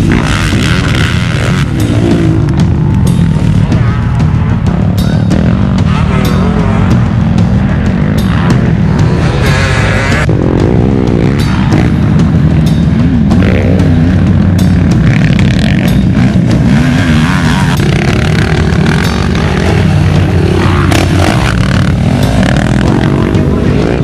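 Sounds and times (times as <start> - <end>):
quad engine revving hard: 0.0 - 3.0.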